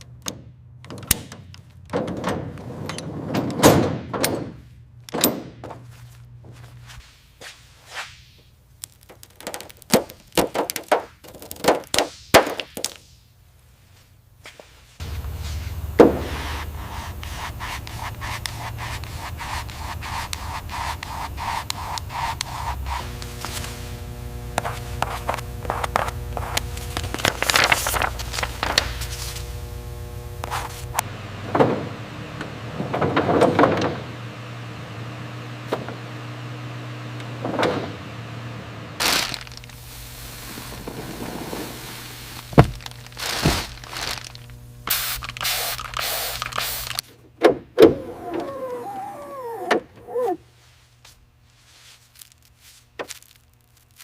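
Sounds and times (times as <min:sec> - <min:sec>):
knocks clunks and scrapes: 0:00.3 - 0:06.6, 0:15.0 - 0:20.4, 0:30.4 - 0:34.3, 0:37.2 - 0:38.6, 0:40.6 - 0:41.9
steady low hum: 0:13.2 - 0:54.0.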